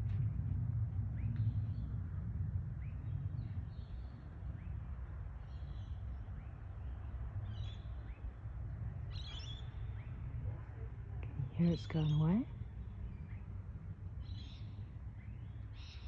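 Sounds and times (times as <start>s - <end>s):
low rumble in the sky: 0.0s - 16.0s
small birds chirping: 9.1s - 10.4s, 11.3s - 13.6s.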